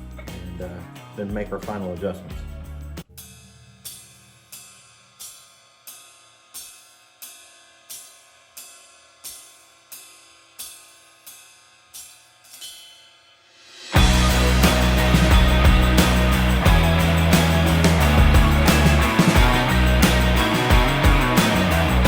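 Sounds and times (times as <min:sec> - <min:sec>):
loud rock music: 0:14.0 - 0:22.0.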